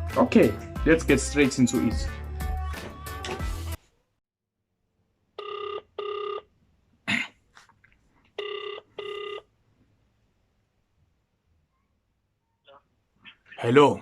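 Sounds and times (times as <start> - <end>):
telephone ringback tone: 5.4 - 6.5, 8.4 - 9.5.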